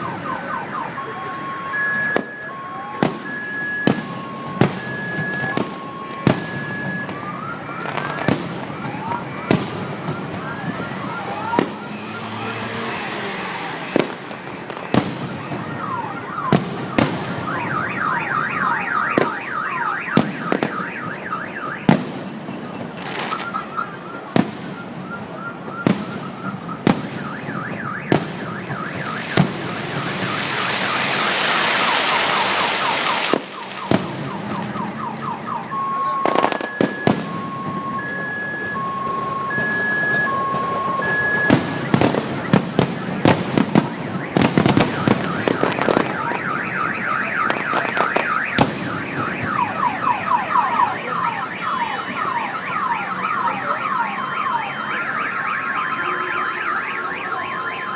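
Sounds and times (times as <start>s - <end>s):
car alarm beeping: 0.0s - 13.1s, 14.7s - 57.9s
fireworks bangs: 0.0s - 57.9s
dense crackling hiss: 29.2s - 33.9s.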